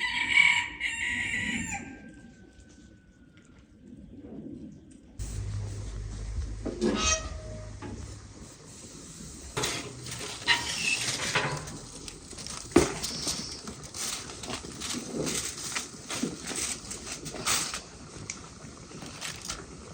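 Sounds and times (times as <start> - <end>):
low rumble: 5.2 - 10.5
farm animal call: 6.8 - 8.0.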